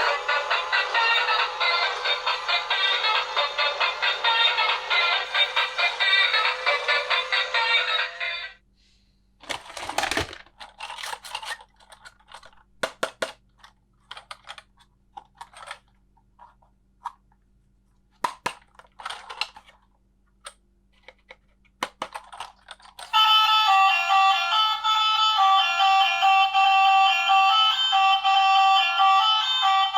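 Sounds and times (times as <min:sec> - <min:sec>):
plastic pieces clicking: 0:09.4 - 0:16.0, 0:21.0 - 0:23.1.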